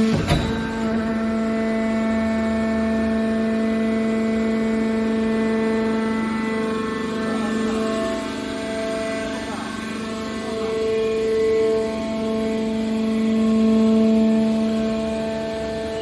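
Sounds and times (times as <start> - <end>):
hydraulic power unit whine: 0.0 - 16.0
sharp knock: 0.1 - 1.4.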